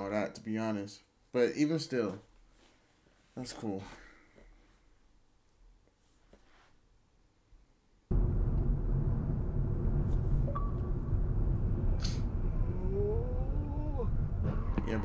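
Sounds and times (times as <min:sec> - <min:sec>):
car road and engine rumble: 0:08.1 - 0:15.0
rising tone: 0:08.1 - 0:15.0.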